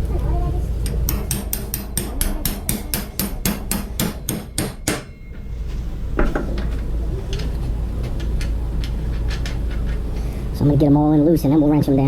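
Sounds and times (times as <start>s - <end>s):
hammer striking bolt: 0.9s - 5.2s.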